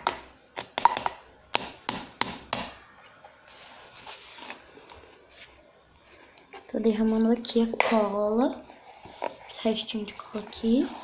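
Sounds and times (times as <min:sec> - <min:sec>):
plastic containers tapping and clicking: 0:00.0 - 0:02.8
soft rustle: 0:03.4 - 0:07.5.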